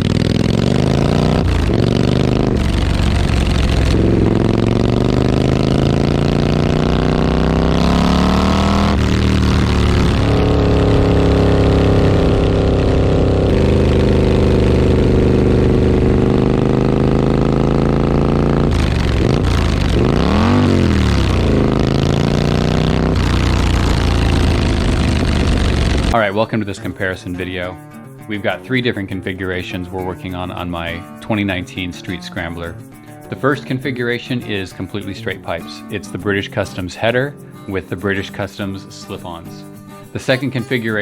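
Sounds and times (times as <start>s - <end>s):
motorcycle engine pulling: 0.0s - 26.2s.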